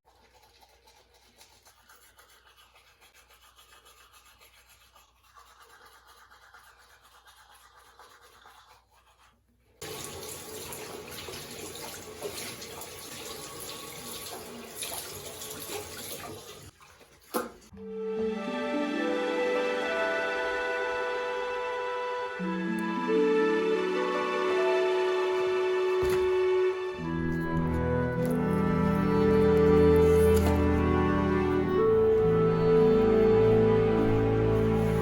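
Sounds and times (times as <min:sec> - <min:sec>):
tap water running into sink: 0:09.8 - 0:17.7.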